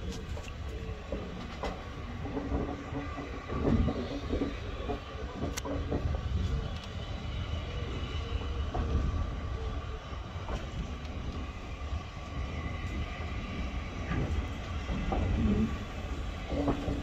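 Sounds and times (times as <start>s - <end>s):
carriage wheels rumbling on track: 0.0s - 9.4s, 14.0s - 17.0s.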